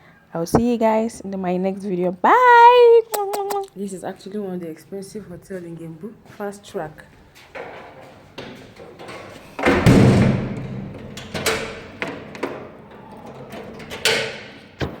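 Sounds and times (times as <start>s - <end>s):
sharp knocks and bumps: 0.5s - 0.8s, 7.6s - 12.6s
loud thud: 9.6s - 11.1s.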